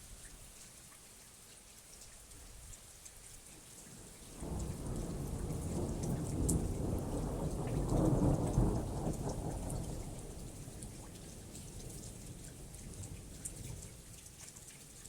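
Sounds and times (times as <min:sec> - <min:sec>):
raindrops pattering: 0:00.0 - 0:15.0
thunder rumbling: 0:04.4 - 0:10.3.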